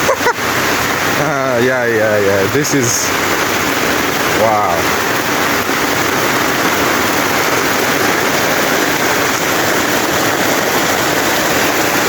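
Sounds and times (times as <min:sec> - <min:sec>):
heavy rain falling: 0:00.0 - 0:12.0
rainwater running: 0:00.0 - 0:12.0.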